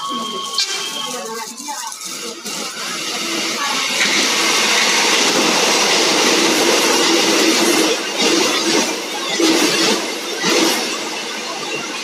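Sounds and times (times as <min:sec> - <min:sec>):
electric train wheels rushing: 0:00.0 - 0:12.0.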